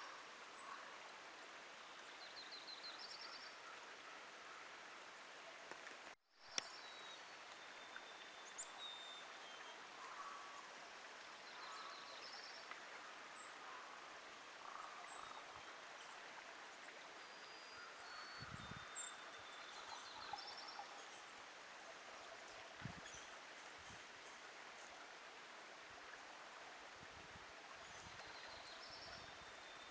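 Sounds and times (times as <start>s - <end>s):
click: 5.7s - 6.8s.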